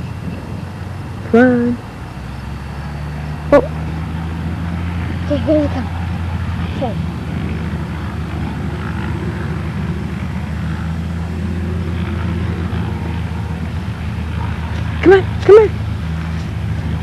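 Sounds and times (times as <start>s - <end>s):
propeller airplane engine droning: 0.0s - 17.0s.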